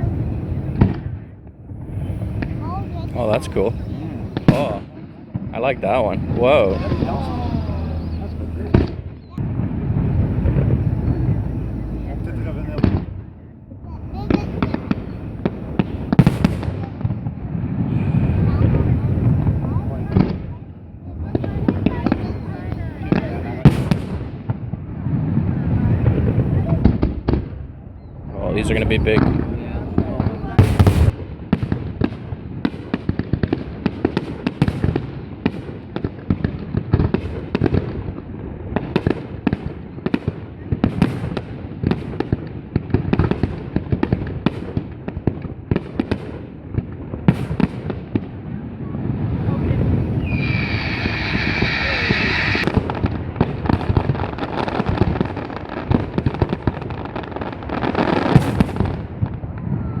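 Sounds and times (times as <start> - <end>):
low rumble: 0.0 - 16.6, 17.9 - 23.2, 25.5 - 30.9, 49.2 - 52.7
fireworks bangs and crackles: 0.0 - 60.0
fireworks hiss: 1.7 - 4.9, 5.5 - 13.1, 14.0 - 16.8, 17.8 - 20.5, 49.2 - 53.1.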